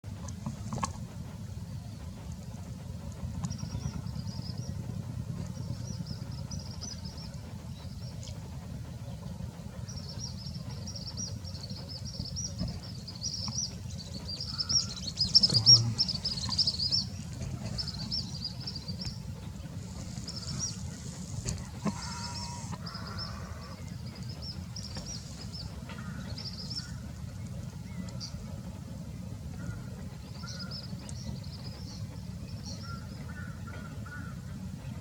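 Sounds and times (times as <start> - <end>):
steady low rumble: 0.0 - 35.0
small birds chirping: 9.8 - 28.4.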